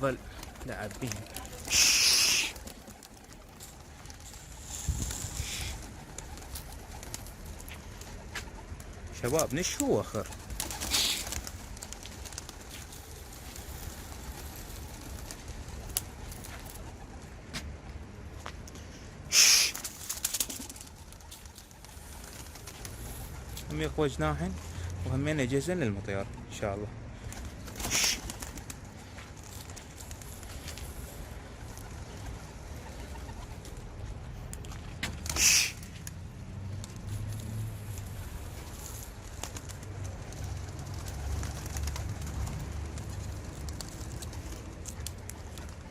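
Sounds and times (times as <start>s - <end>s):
pigeons flapping wings: 0.0s - 17.5s, 19.3s - 23.8s, 27.2s - 45.9s
pigeons cooing: 1.6s - 7.4s, 10.5s - 11.5s, 27.6s - 29.1s.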